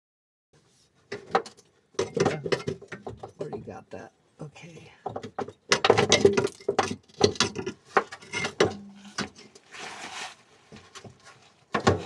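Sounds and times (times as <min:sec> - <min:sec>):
car parts and tools clattering: 0:01.0 - 0:03.8, 0:05.0 - 0:09.7.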